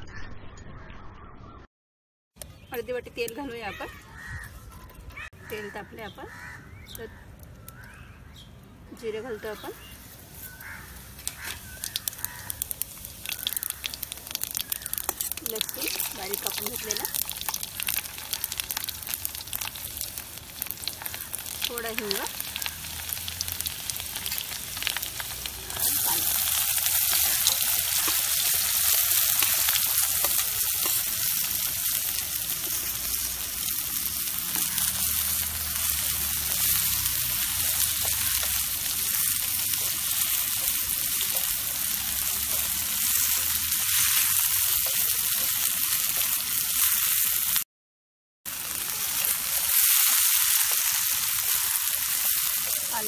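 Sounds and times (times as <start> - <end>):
hot oil sizzling: 5.5 - 47.7, 48.5 - 53.0
onions frying with dense hiss: 9.0 - 47.6, 48.5 - 53.0
spatula stirring: 10.4 - 46.3.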